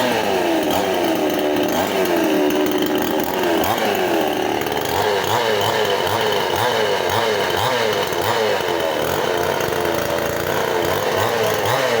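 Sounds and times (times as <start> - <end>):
chainsaw engine running fast: 0.0 - 12.0.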